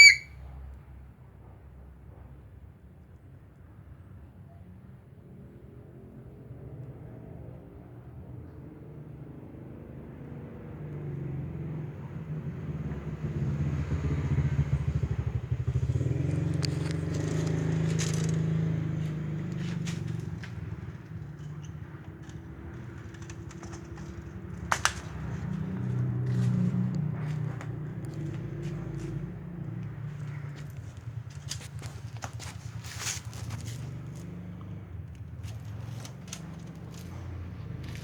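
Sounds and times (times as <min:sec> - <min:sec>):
engine running: 0:12.9 - 0:38.0.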